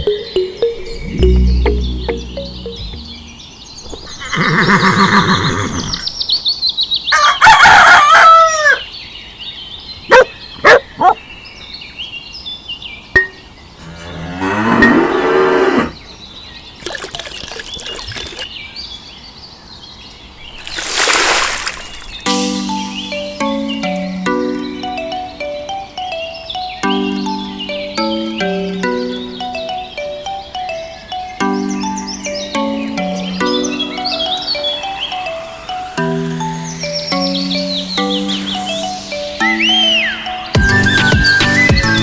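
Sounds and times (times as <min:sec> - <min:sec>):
rooster crowing: 0:07.1 - 0:08.8
cattle mooing: 0:13.8 - 0:16.0.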